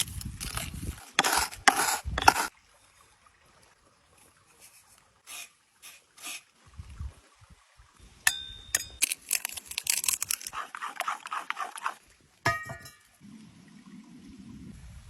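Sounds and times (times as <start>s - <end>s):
metal cookware clinking: 8.3s - 9.1s, 12.5s - 13.1s.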